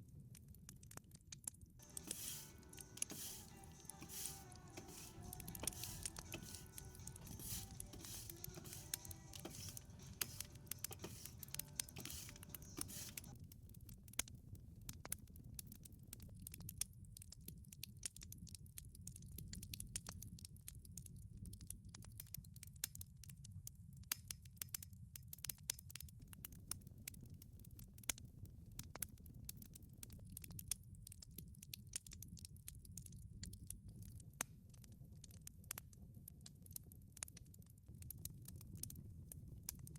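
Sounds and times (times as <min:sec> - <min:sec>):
wood fire crackling in oven: 0:00.0 - 0:39.9
faint hiss with steady tones: 0:01.8 - 0:13.3
low rumble of flames: 0:25.0 - 0:39.9.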